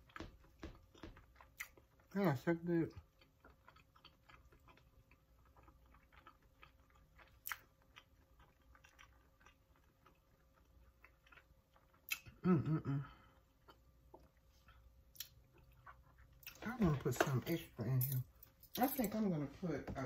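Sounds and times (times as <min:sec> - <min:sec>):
person chewing with wet clicks: 0:00.0 - 0:02.2, 0:02.9 - 0:12.4, 0:13.4 - 0:16.7.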